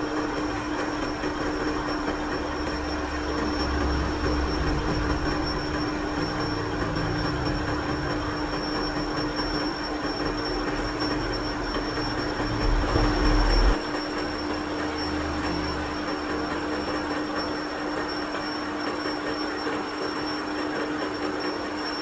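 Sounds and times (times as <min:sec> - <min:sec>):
low mechanical rumble: 0:00.0 - 0:17.0
machine high whine: 0:00.0 - 0:22.0.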